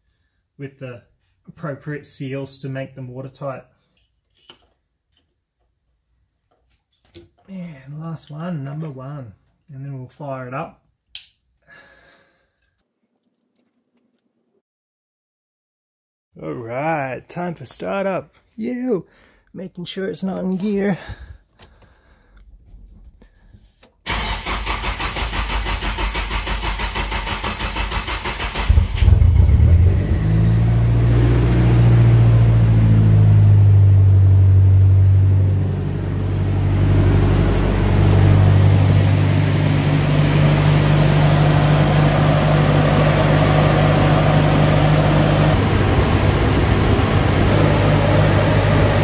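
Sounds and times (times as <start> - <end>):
starter motor cranking: 24.1 - 29.2
car engine idling: 25.2 - 49.0.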